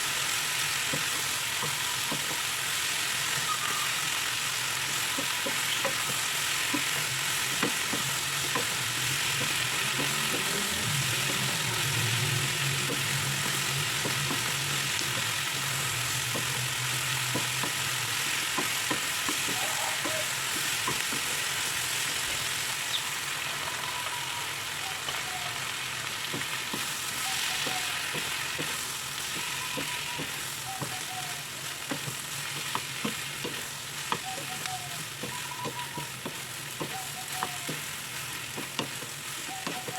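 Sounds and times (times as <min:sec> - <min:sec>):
food sizzling in a pan: 0:00.0 - 0:39.9
spatula clicking and scraping: 0:04.8 - 0:22.4, 0:26.3 - 0:31.1, 0:31.7 - 0:39.9.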